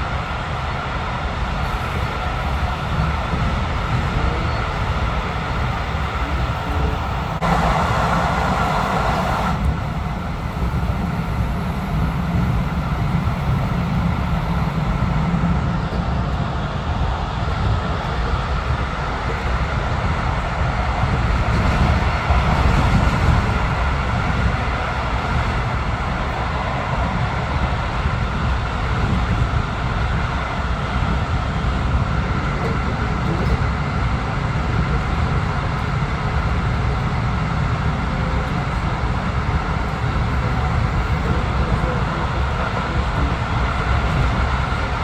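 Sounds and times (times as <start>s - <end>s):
train wheels rolling on rails: 0.0s - 45.0s.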